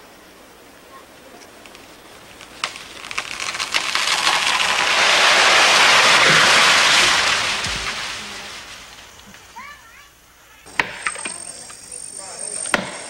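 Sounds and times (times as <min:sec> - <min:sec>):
tree landing thud: 0:01.5 - 0:10.0
tree crashing through foliage: 0:01.5 - 0:11.4.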